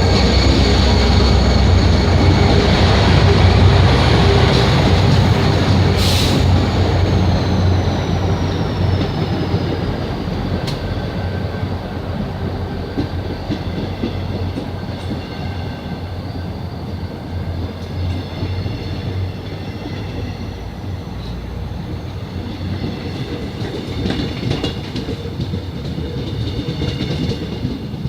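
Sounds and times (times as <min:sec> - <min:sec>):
high whine: 0:00.0 - 0:11.8
rail clatter: 0:00.0 - 0:28.0
train low drone: 0:00.0 - 0:28.0.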